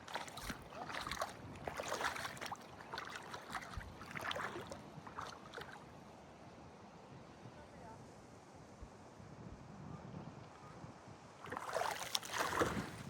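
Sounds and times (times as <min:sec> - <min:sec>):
water splashing and sloshing: 0:00.0 - 0:05.9, 0:11.4 - 0:13.0.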